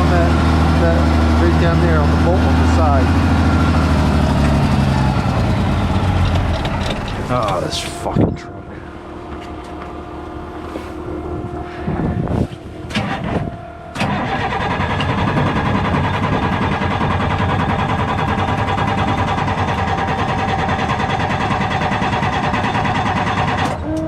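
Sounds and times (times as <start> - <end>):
truck engine starter cranking: 0.0 - 8.3, 12.9 - 23.8.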